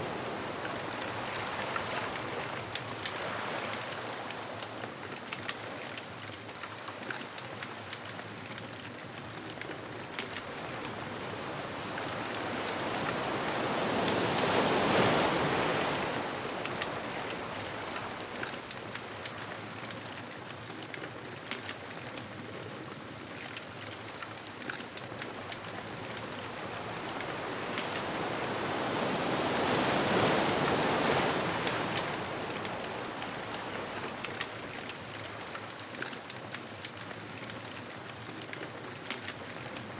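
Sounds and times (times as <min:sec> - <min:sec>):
ocean surf washing: 0:00.0 - 0:05.4, 0:10.0 - 0:20.3, 0:24.9 - 0:38.4.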